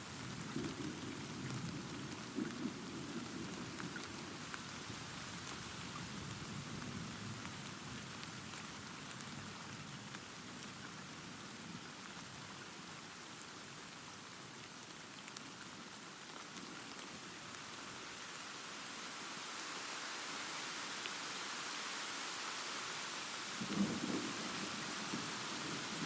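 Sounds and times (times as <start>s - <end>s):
rain falling: 0.0s - 26.0s
distant thunder rumble: 23.6s - 26.0s.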